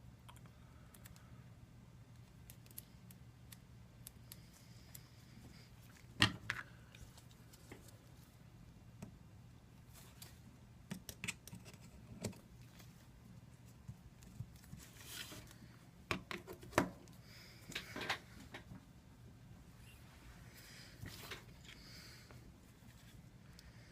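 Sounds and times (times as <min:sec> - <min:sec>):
sticky tape clicks and rustles: 0:02.2 - 0:05.1.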